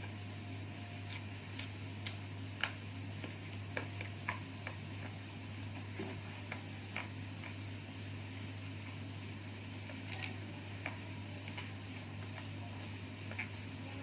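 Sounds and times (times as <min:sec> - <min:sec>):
steady low hum: 0:00.0 - 0:14.0
chewing mouth clicks and smacks: 0:01.0 - 0:05.1.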